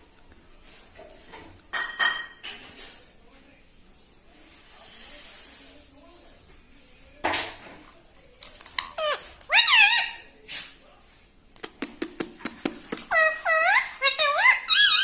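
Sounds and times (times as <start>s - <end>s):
parrot squawking and chirping: 8.7s - 10.3s, 13.1s - 15.0s.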